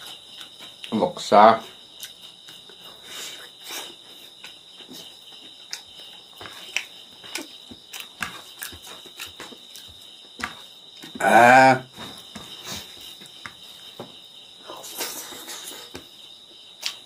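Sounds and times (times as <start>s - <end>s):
high insect trill: 0.0s - 17.0s
man chewing with wet smacks: 2.0s - 2.8s, 3.4s - 11.2s.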